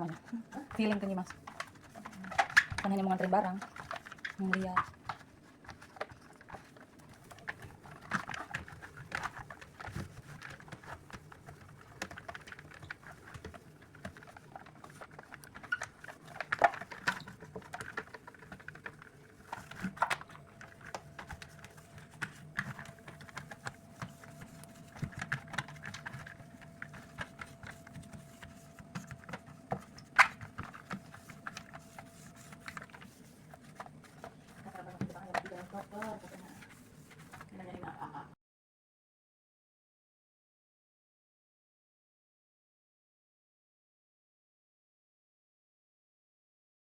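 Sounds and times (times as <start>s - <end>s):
objects clicking and tapping: 0.0s - 37.5s.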